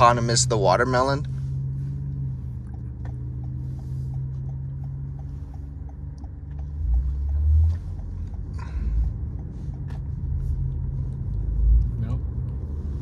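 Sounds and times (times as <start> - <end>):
car road and engine rumble: 0.0 - 13.0
light ticking: 2.4 - 9.9.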